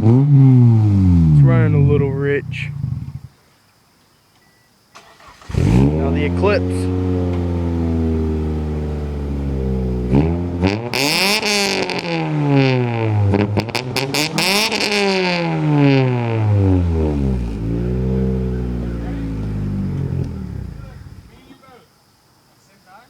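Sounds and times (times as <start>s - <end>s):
car engine idling and revving: 0.0s - 3.3s, 5.0s - 21.4s
exhaust cracks: 0.0s - 3.3s, 5.0s - 21.5s.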